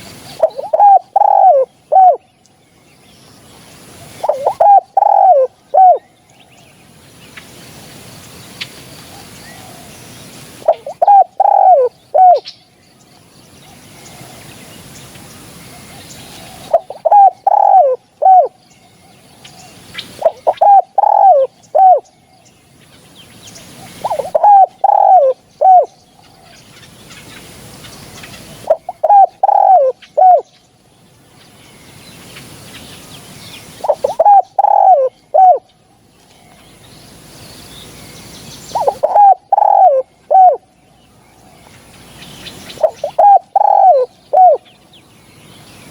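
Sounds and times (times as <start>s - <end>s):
dove cooing: 0.0s - 2.2s, 4.0s - 6.1s, 9.2s - 12.5s, 15.6s - 22.1s, 23.7s - 26.6s, 28.2s - 30.5s, 33.8s - 35.7s, 38.7s - 40.7s, 42.7s - 44.7s.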